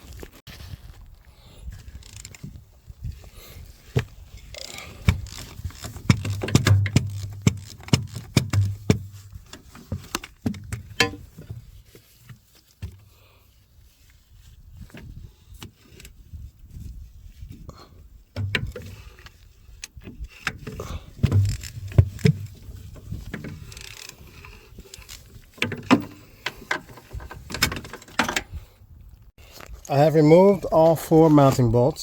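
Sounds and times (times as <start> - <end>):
rubbing and handling noise: 0.0 - 28.6
wrench metal clanks and clicks: 10.9 - 11.3.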